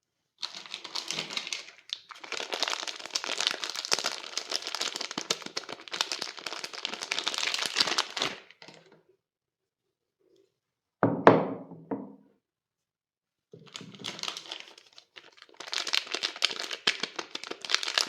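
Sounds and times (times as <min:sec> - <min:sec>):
soap wrapping crinkling: 0:00.4 - 0:08.9, 0:13.6 - 0:18.0.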